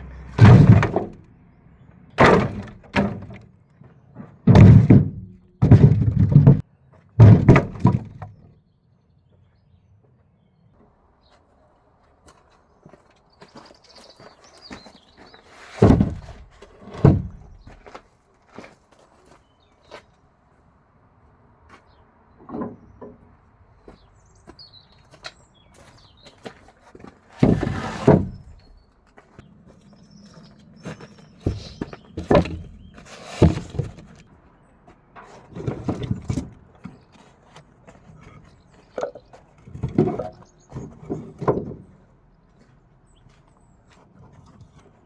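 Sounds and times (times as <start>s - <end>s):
wood clattering: 0.1s - 1.3s, 2.1s - 8.5s, 15.5s - 18.0s, 26.5s - 28.8s, 30.9s - 34.3s, 35.1s - 42.0s
firewood thudding and knocking: 0.2s - 1.3s, 2.2s - 3.5s, 4.2s - 8.5s, 15.7s - 18.0s, 27.4s - 28.8s, 31.4s - 34.3s, 35.2s - 37.0s, 38.2s - 42.0s.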